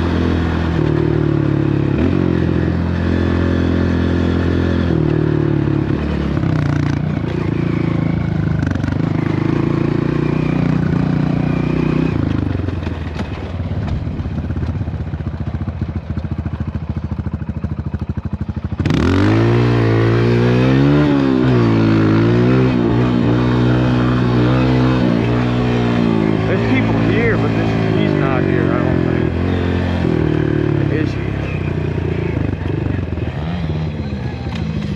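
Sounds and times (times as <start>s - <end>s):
dirt bike engine revving: 0.0s - 14.7s, 16.0s - 34.9s.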